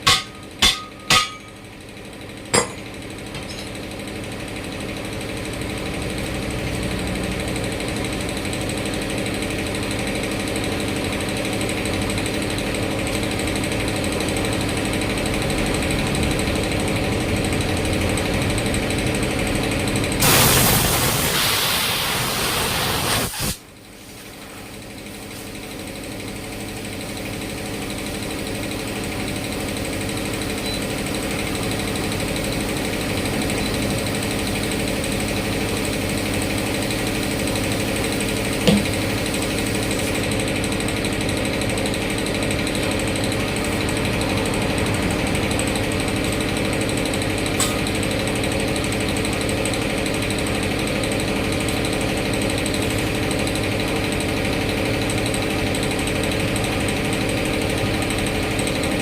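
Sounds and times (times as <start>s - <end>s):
sharp knock: 0.0s - 1.6s
engine running steadily: 0.0s - 59.0s.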